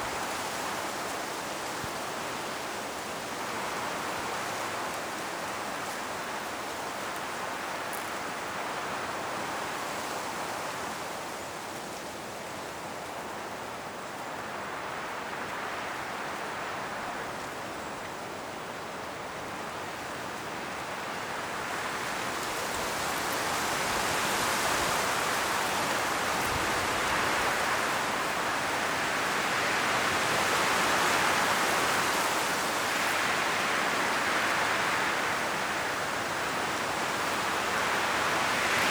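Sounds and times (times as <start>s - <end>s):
wind rustling tree leaves: 0.0s - 38.9s.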